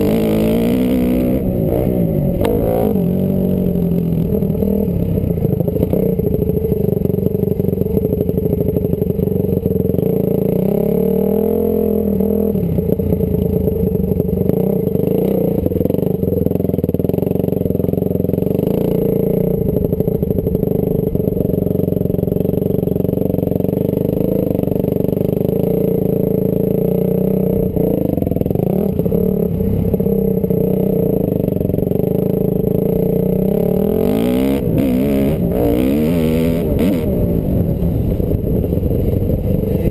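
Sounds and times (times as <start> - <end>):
dirt bike engine revving: 0.0 - 6.5, 23.8 - 39.9.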